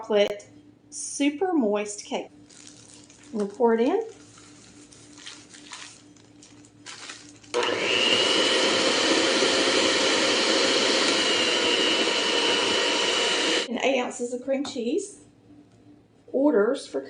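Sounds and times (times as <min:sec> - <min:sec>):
electric mixer whining: 0:07.5 - 0:13.7.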